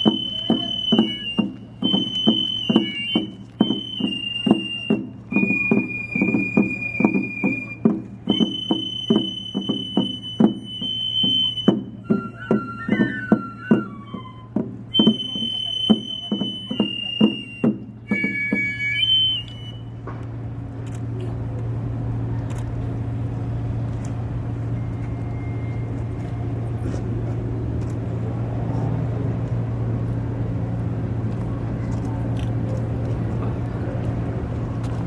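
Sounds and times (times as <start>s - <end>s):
high sustained wind instrument tones: 0.0s - 20.0s
low engine-like hum: 0.0s - 35.0s.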